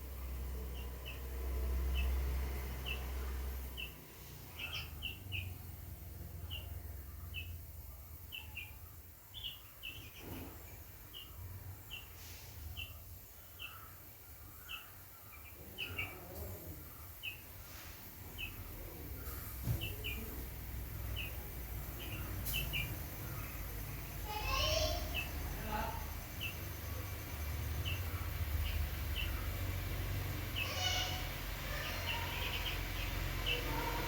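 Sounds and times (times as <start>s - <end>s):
small bird chirping: 0.0s - 34.0s.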